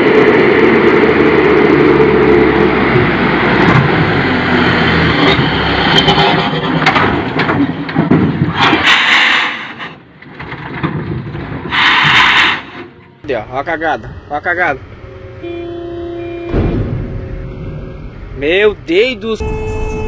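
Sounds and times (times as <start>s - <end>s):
vehicle engine and road noise: 0.0s - 20.0s
sharp knocks: 16.5s - 17.1s.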